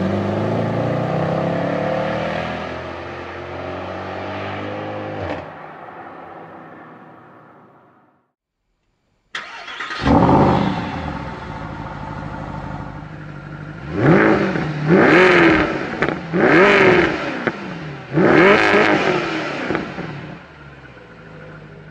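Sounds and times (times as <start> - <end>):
engine revving: 0.0 - 5.5, 9.4 - 20.6
car engine starting and idling: 9.3 - 21.9.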